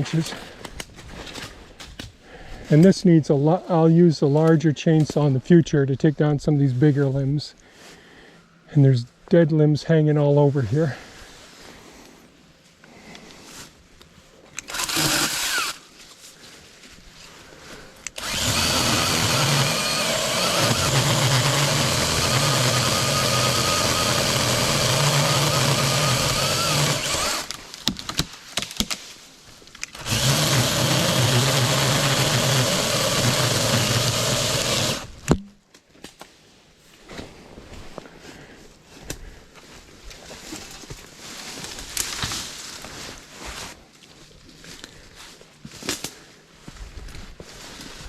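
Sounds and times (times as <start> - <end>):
cordless chainsaw running: 14.6 - 15.8, 18.0 - 27.6, 29.8 - 35.3.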